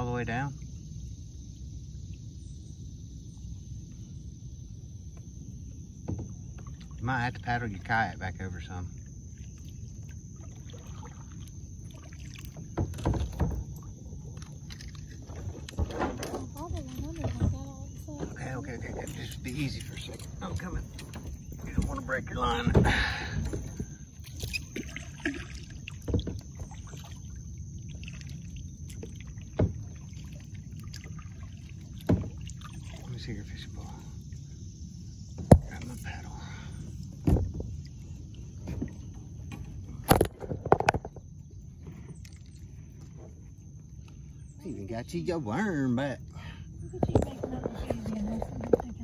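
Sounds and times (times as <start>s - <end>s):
low water rumble: 0.0s - 49.0s
paddle strokes and knocks: 5.0s - 8.1s, 9.0s - 34.0s, 36.9s - 44.3s.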